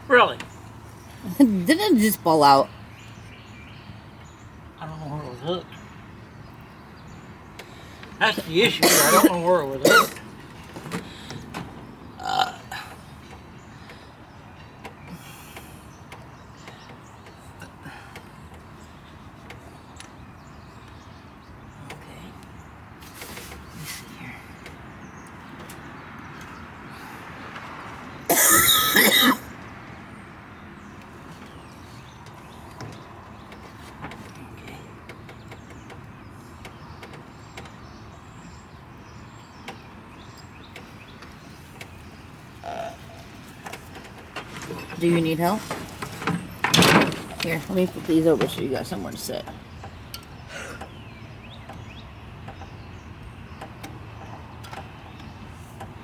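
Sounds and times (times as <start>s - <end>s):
person clearing throat: 8.7s - 10.2s, 28.3s - 29.5s.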